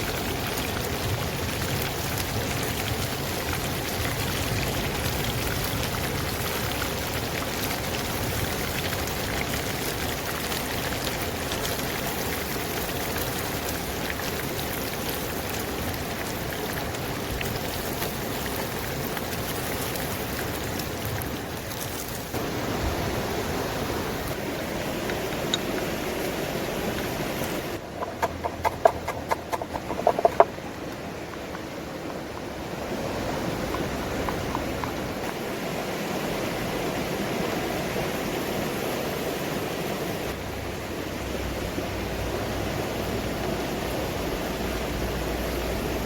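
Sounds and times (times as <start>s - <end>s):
chicken deep-frying in oil: 0.0s - 36.8s.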